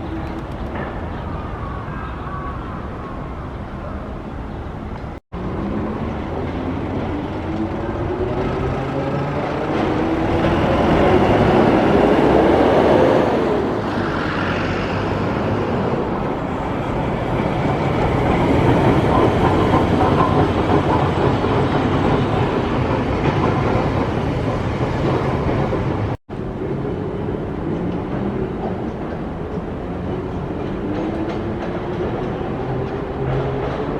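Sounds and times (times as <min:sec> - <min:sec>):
steel wheels rumbling on rail: 0:05.4 - 0:33.9.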